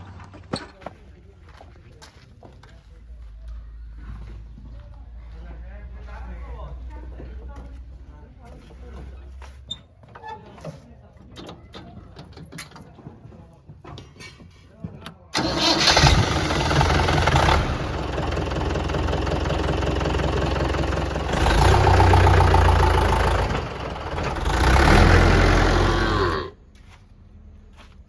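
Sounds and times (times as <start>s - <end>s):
diesel engine running under load: 15.4s - 26.6s.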